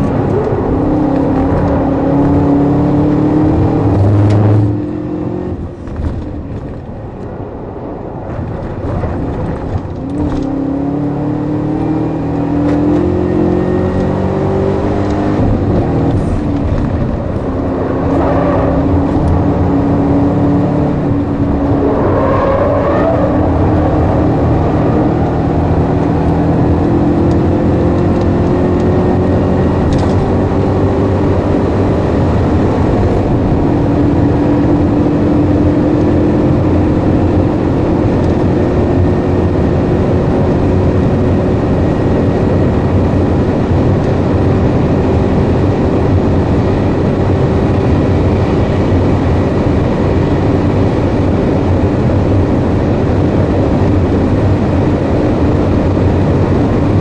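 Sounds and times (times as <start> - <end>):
car engine revving: 0.0 - 6.1, 8.6 - 57.0
tyre and road noise: 0.0 - 57.0.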